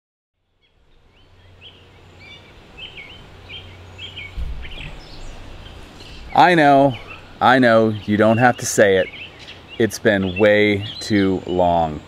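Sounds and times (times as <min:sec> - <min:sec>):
birds singing: 0:00.4 - 0:12.0
steady low rumble: 0:00.6 - 0:09.3
low thump: 0:04.2 - 0:07.4.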